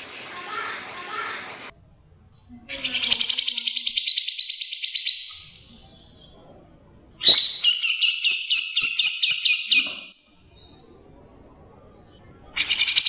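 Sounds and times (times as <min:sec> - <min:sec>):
repeated whistled bird notes: 0:02.3 - 0:06.5, 0:07.2 - 0:13.0
songbird trilling: 0:02.7 - 0:06.4, 0:07.2 - 0:10.8.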